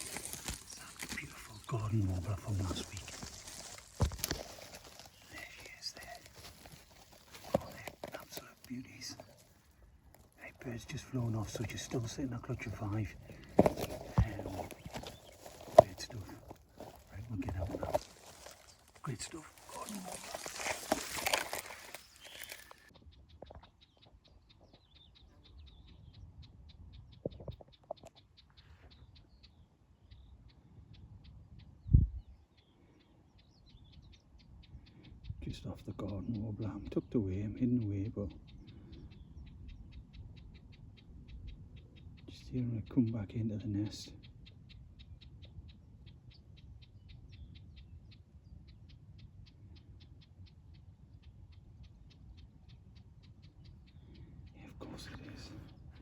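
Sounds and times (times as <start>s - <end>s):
rustling vegetation: 0.0s - 22.9s
songbird chirping: 0.0s - 56.0s.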